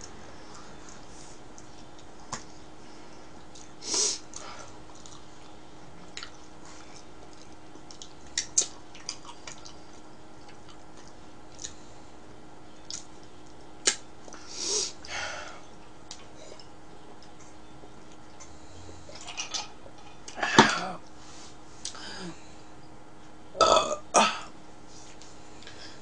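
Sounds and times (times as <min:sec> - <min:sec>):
steady low hum: 0:00.0 - 0:26.0
person chewing: 0:03.3 - 0:11.8.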